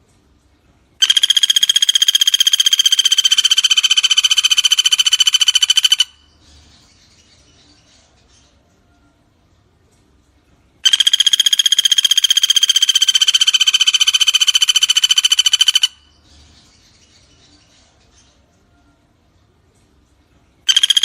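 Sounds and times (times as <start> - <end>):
woodpecker rattling trill: 1.0 - 6.4, 10.8 - 16.2, 20.7 - 21.0.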